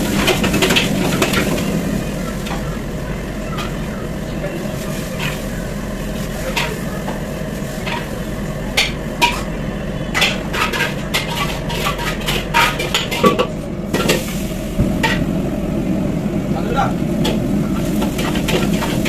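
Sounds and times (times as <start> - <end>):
steady low hum: 0.0 - 19.0
metal spatula scraping wok: 7.8 - 15.2.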